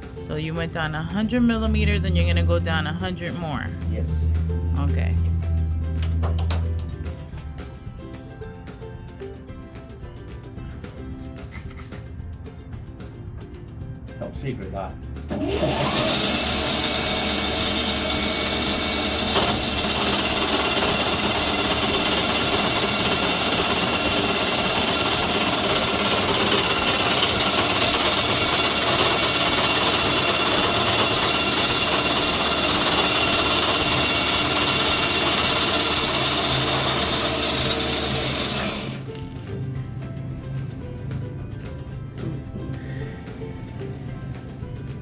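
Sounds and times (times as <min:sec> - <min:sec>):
cutting machine whining: 0:15.3 - 0:39.1.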